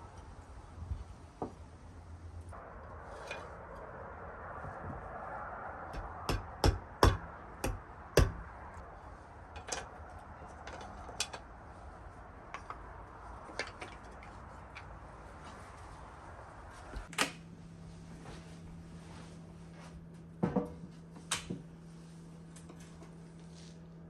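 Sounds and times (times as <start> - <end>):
loud knocks: 6.0 - 8.5.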